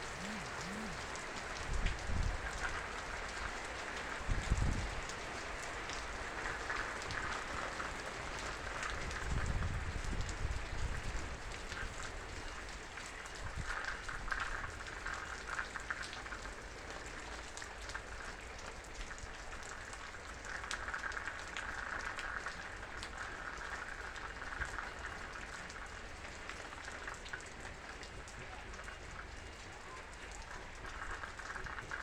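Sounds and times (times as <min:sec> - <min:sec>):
heavy rain falling: 0:00.0 - 0:18.9
raindrops ticking on a surface: 0:00.0 - 0:32.0.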